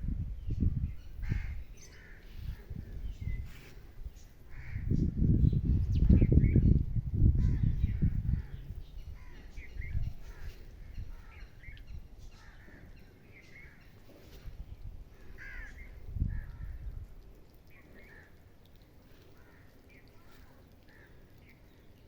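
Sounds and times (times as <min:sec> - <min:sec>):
birds calling harshly: 0:00.9 - 0:06.7, 0:07.4 - 0:16.8.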